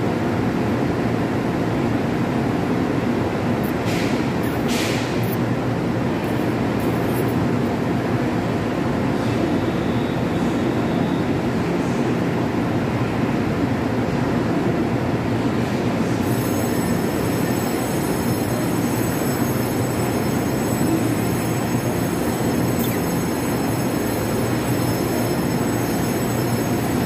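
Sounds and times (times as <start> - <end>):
train equipment humming: 15.7 - 27.0
thin high-pitched tones: 16.2 - 27.0.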